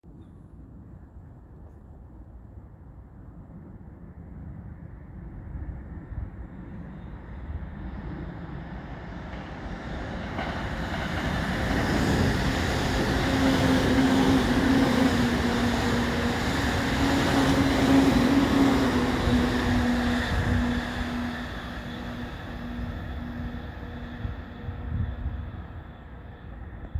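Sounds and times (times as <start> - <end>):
electric train approaching: 6.8 - 26.9.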